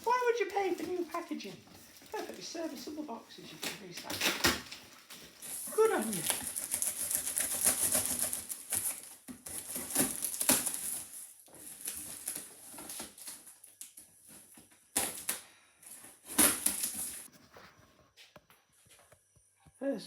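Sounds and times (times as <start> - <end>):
cardboard ripping: 0.0 - 17.3
cardboard crackling and rustling: 0.0 - 17.8.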